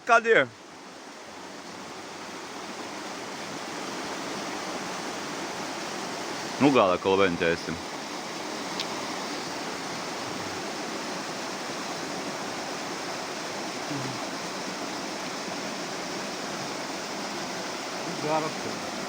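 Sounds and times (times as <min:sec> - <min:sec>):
fast-flowing water rushing: 0:00.0 - 0:19.0.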